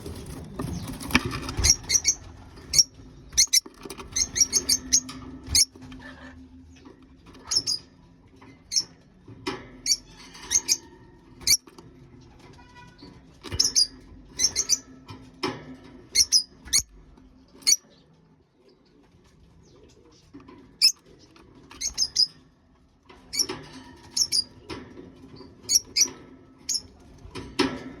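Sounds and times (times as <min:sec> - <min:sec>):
pigeons squeaking: 0:00.0 - 0:05.9, 0:06.8 - 0:09.2, 0:09.8 - 0:15.1, 0:16.1 - 0:18.0, 0:19.6 - 0:22.6, 0:23.2 - 0:27.0.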